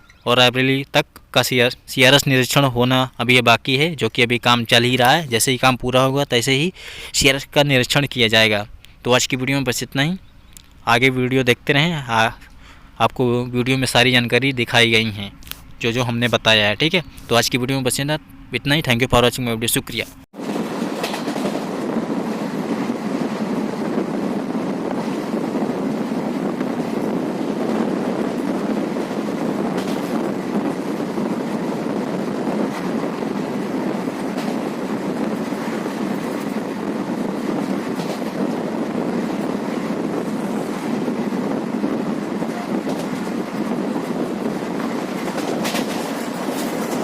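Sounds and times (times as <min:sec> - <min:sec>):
rail joint clicks: 0:00.0 - 0:01.4, 0:09.7 - 0:10.9, 0:12.3 - 0:18.8, 0:19.8 - 0:47.0
train wheels rumbling on rail: 0:19.8 - 0:47.0.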